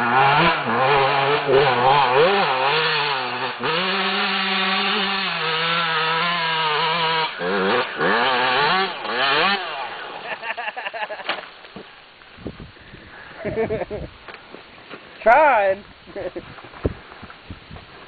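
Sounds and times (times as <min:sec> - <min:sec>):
motorcycle engine revving: 0:00.0 - 0:10.5.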